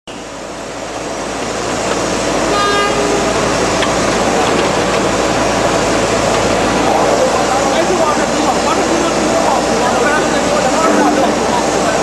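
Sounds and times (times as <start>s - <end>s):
short horn toot: 10.8s - 11.5s.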